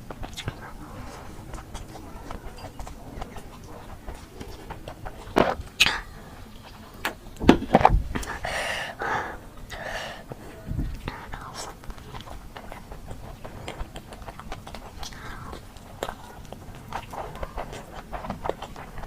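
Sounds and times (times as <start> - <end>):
person chewing food: 0.0 - 19.0
wet mouth clicks: 0.1 - 0.8
breathy noise: 8.2 - 11.8.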